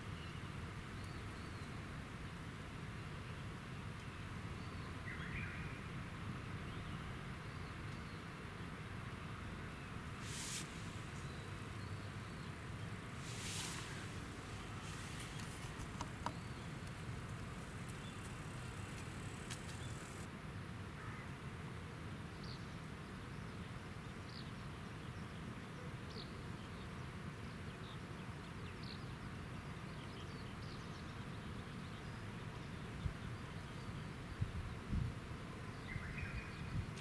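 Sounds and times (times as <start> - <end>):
riverside background noise: 0.0 - 20.7
thin high whine: 10.0 - 20.3.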